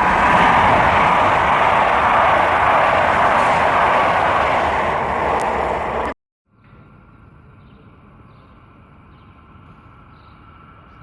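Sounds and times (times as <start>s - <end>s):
high-speed train passing: 0.0s - 6.2s.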